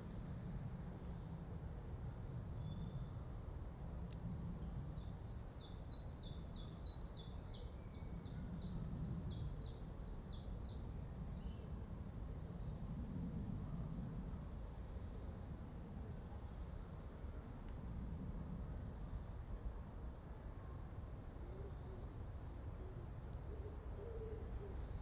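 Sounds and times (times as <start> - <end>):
low wind rumble: 0.0 - 25.0
songbird singing: 1.7 - 3.2, 4.6 - 13.1, 21.2 - 25.0.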